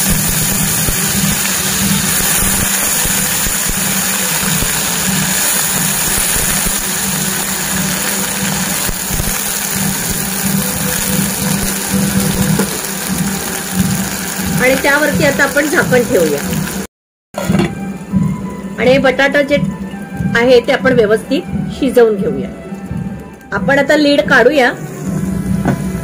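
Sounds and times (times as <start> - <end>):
potatoes sizzling in oil: 0.0 - 16.9.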